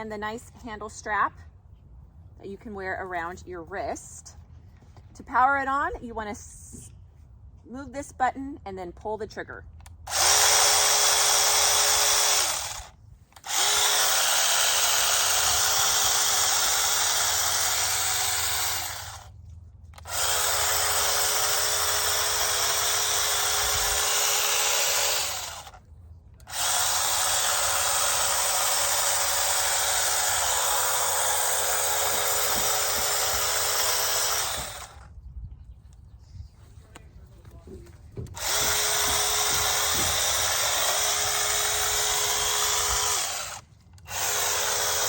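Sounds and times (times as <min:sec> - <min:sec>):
electric mini chainsaw whining: 0:10.1 - 0:19.4, 0:20.0 - 0:25.8, 0:26.4 - 0:35.1, 0:38.2 - 0:45.0.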